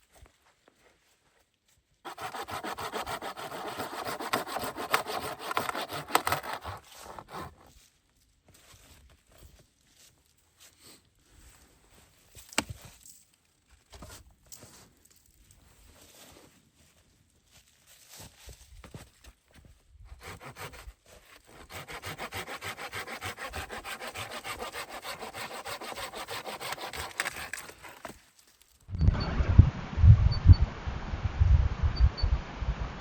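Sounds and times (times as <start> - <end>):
hand saw cutting wood: 2.1 - 7.7, 20.1 - 28.2
handling sounds: 26.6 - 28.9.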